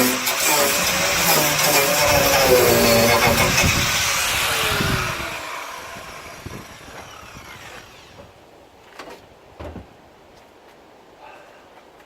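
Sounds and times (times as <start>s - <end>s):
power tool spinning down: 0.0s - 8.3s.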